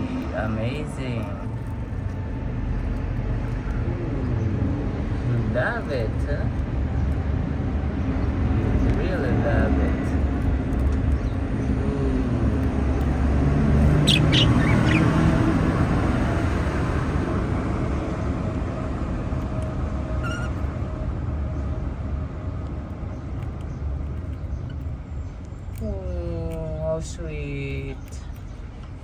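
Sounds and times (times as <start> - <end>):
budgerigars chirping: 13.7 - 15.9, 20.2 - 20.6.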